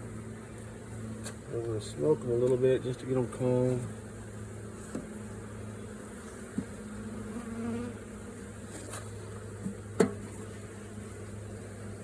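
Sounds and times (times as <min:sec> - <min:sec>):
honeybees humming: 0:00.0 - 0:12.0
light knocks on hive: 0:04.9 - 0:05.1, 0:06.5 - 0:06.8, 0:09.6 - 0:10.4.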